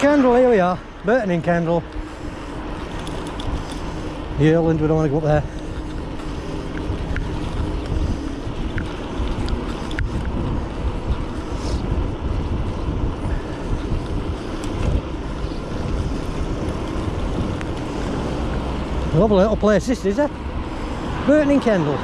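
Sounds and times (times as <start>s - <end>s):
wind buffeting microphone: 0.0s - 22.0s
faint ticks: 5.5s - 10.4s.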